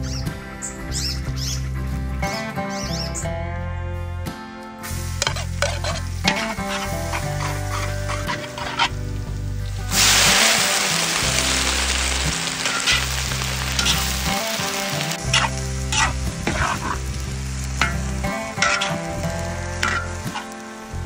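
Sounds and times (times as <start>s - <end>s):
cabbage sizzling in wok: 4.8s - 21.0s
metal ladle scraping wok: 5.2s - 9.1s, 12.6s - 20.6s.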